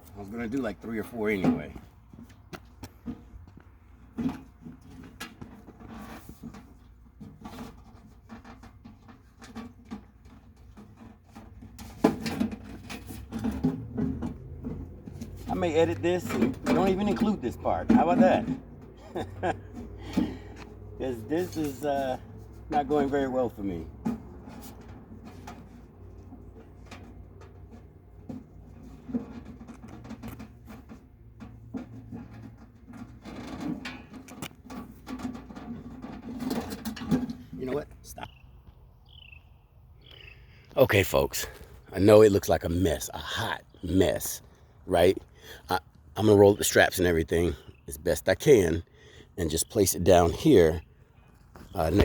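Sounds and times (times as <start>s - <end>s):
clicks and knocks of handling: 23.9s - 37.5s.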